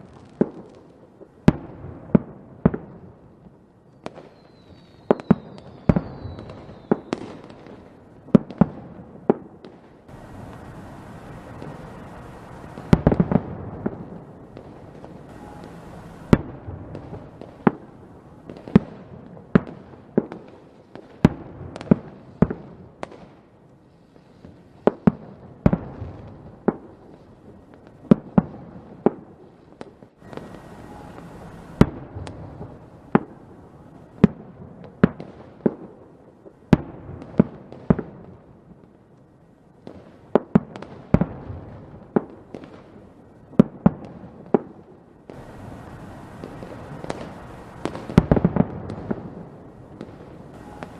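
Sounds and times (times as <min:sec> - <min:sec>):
fireworks rumble and crackle: 0:00.0 - 0:50.9
fireworks shells bursting: 0:10.1 - 0:17.8, 0:30.2 - 0:33.4, 0:50.0 - 0:50.9.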